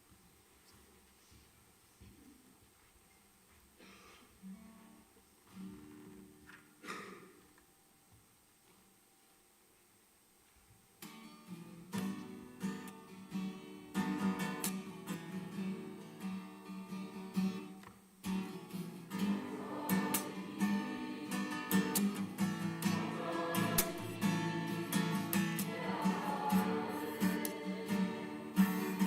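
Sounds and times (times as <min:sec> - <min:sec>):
acoustic guitar strumming: 0:11.0 - 0:29.0.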